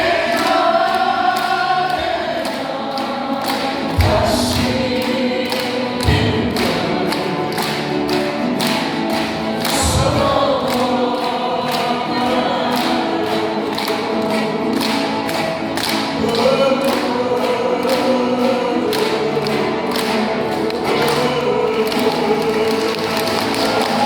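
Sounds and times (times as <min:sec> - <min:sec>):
crowd singing a pop song: 0:00.0 - 0:24.0
steady beat: 0:03.6 - 0:07.4.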